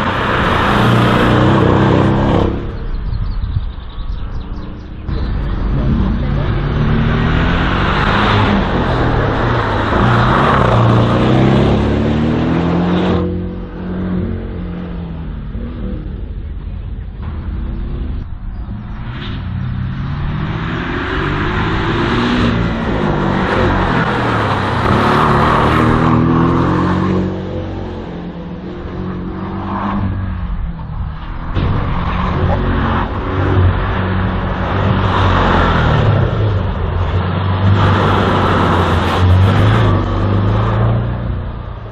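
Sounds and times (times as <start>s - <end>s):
race car engine revving: 0.0s - 3.0s, 4.5s - 41.9s.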